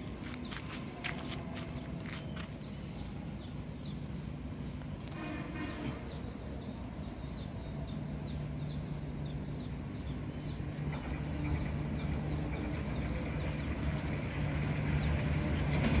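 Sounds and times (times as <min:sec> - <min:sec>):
diesel locomotive engine humming: 0:00.0 - 0:16.0
bird chirping: 0:05.9 - 0:15.9.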